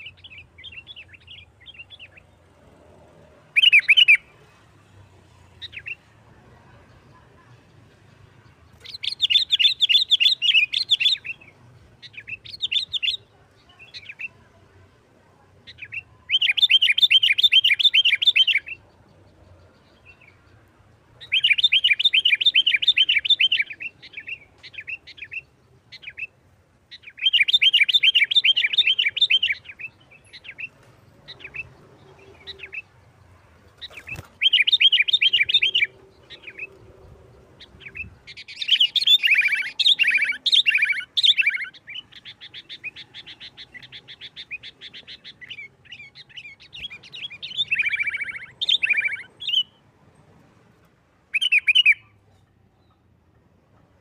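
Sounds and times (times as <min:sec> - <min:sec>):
bulbul chattering song: 0:03.4 - 0:04.4, 0:06.8 - 0:14.6, 0:15.5 - 0:49.8, 0:51.3 - 0:52.2.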